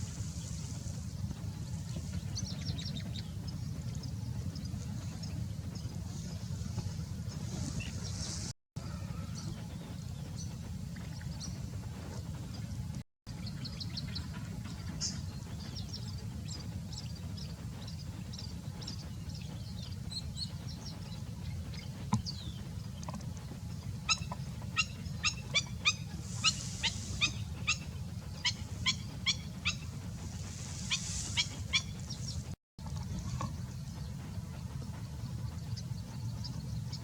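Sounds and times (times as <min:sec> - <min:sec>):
steady low hum: 0:00.0 - 0:37.0
bird calling: 0:24.0 - 0:32.6.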